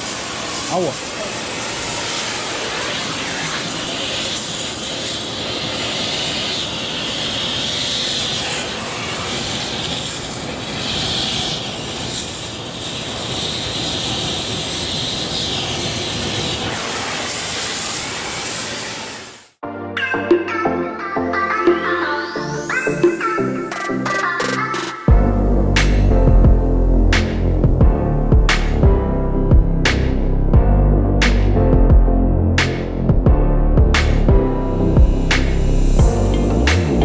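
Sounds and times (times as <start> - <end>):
torch flame roaring hiss: 0.0 - 19.6, 25.2 - 28.8.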